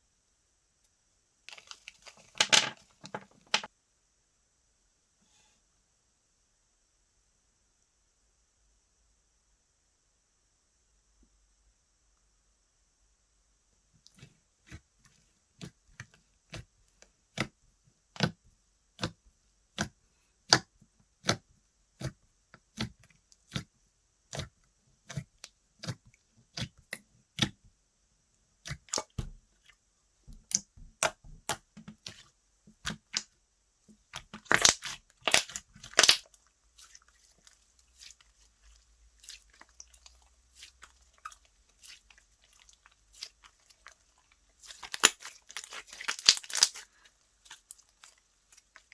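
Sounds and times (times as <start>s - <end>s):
slime crackling: 1.5s - 2.5s, 30.3s - 33.3s, 34.0s - 48.9s
slime clicking and popping: 30.3s - 32.2s, 34.1s - 36.3s, 44.6s - 46.8s.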